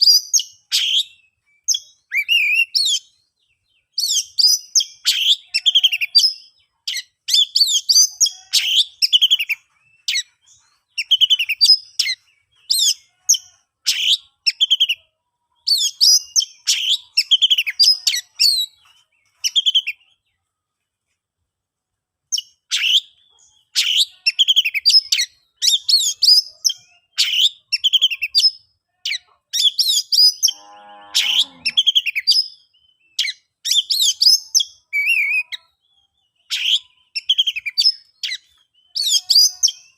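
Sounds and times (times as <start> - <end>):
bird singing whistled phrases: 0.0 - 3.1, 22.4 - 23.2, 31.3 - 39.9.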